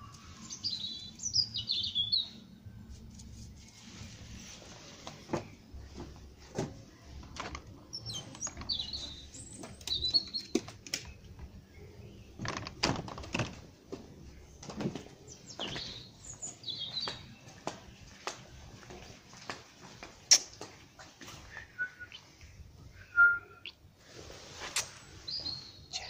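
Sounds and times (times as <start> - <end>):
birds chirping: 0.0 - 2.6, 5.2 - 18.7, 24.8 - 26.0
patio door clicks and knocks: 12.4 - 13.7.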